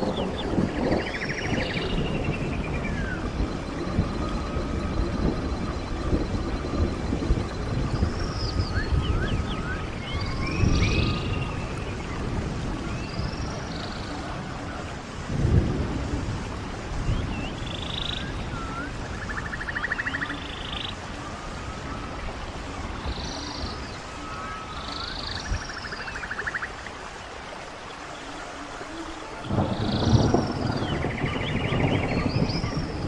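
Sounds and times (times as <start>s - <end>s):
birds chirping and whistling: 0.0s - 12.3s, 17.0s - 22.2s, 29.5s - 33.0s
stream running water: 0.0s - 33.0s.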